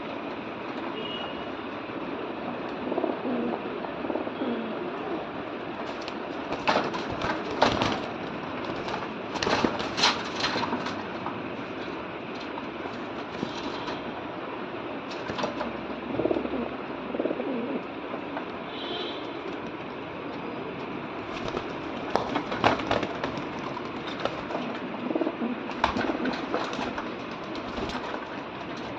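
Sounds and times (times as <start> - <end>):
background noise: 0.0 - 28.9
pigeons cooing: 1.0 - 28.9
wing clattering bursts: 5.6 - 14.3, 15.0 - 15.9, 20.8 - 28.9.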